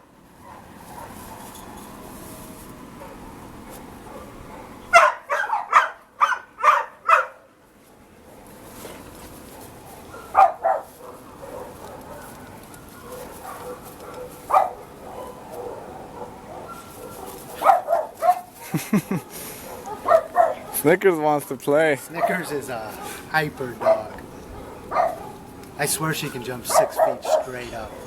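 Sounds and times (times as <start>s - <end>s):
dog barking: 0.4s - 1.4s, 3.0s - 7.5s, 9.6s - 21.0s, 22.0s - 25.5s, 26.6s - 28.0s.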